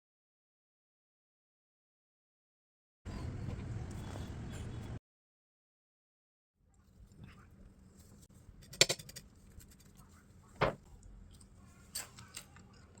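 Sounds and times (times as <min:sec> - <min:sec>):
kitchenware clattering: 0:08.6 - 0:09.2.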